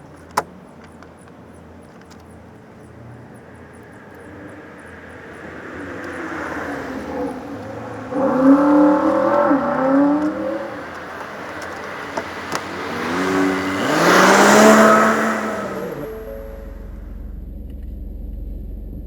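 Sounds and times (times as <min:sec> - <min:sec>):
car engines accelerating: 0:00.0 - 0:19.0
vehicle passing close: 0:02.8 - 0:19.0.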